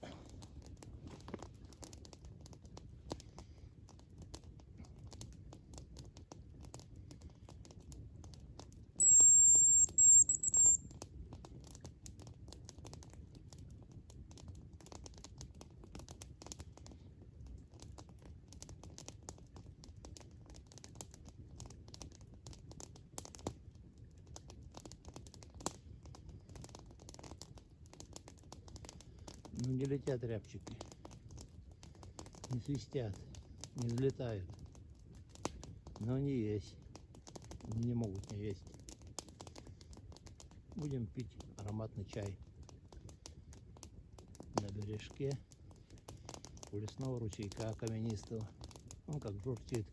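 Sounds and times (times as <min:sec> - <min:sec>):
faint crackles and ticks: 0:00.0 - 0:49.9
low hum: 0:09.0 - 0:10.8
high thin bird whistle: 0:09.0 - 0:10.9.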